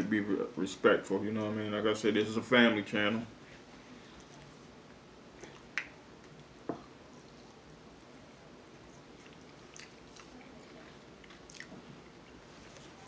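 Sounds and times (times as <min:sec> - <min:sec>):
person chewing: 0:07.1 - 0:13.0.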